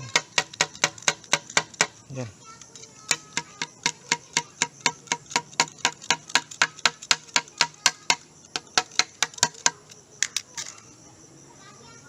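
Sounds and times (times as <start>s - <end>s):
tapping on hard plastic: 0.0s - 2.0s, 3.1s - 10.4s.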